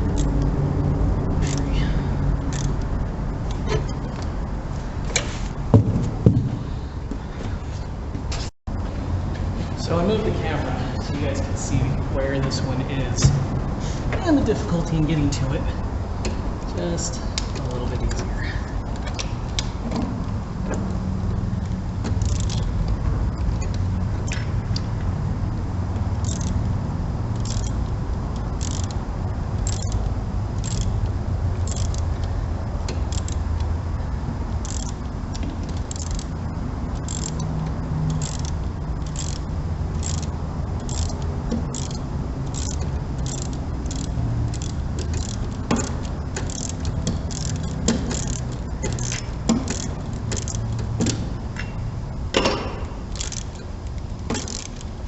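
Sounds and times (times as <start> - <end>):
socket ratchet clicking: 0.0 - 0.5, 1.4 - 1.7, 2.5 - 4.3, 21.6 - 24.9, 26.0 - 33.8, 34.5 - 51.8, 52.4 - 55.0
low rumble: 0.0 - 7.2.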